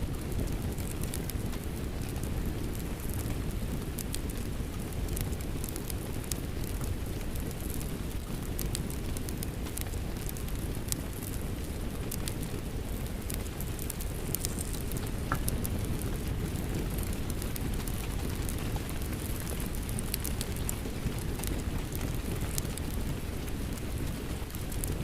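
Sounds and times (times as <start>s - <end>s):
steady rain: 0.0s - 25.0s
wood fire crackling: 0.0s - 25.0s.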